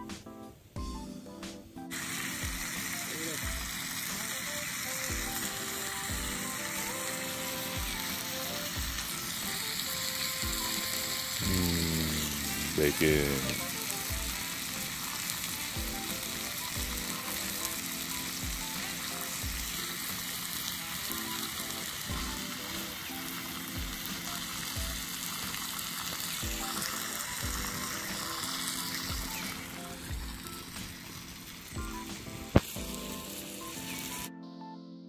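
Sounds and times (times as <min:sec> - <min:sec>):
soft music: 0:00.0 - 0:35.0
food sizzling in a skillet: 0:01.9 - 0:34.3
sharp pop: 0:32.5 - 0:32.7.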